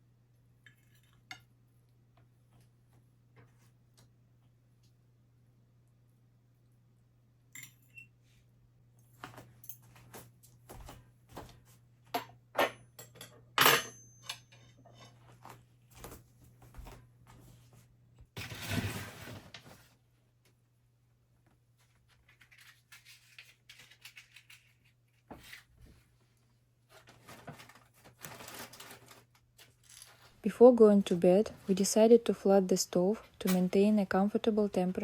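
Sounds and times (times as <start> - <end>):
dishes and cutlery clinking: 12.1 - 15.2.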